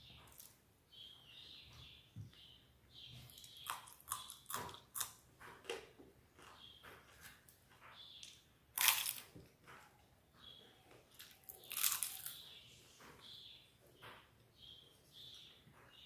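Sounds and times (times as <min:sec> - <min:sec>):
wet chewing: 0:03.3 - 0:07.1, 0:10.9 - 0:12.5
crunchy bite: 0:03.4 - 0:05.2, 0:08.8 - 0:09.3, 0:11.2 - 0:12.4.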